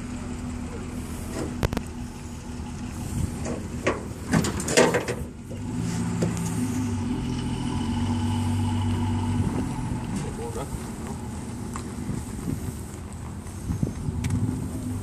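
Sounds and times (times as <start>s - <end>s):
engine knocks and clatter: 0.0s - 15.0s
engine running with low drone: 0.0s - 15.0s.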